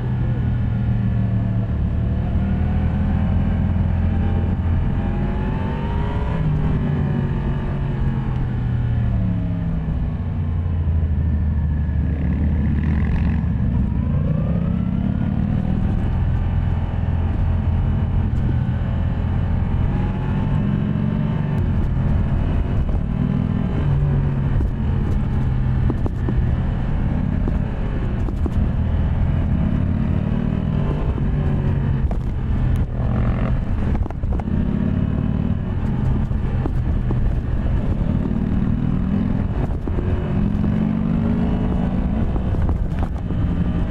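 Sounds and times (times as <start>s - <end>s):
motorcycle engine revving: 11.7s - 43.9s.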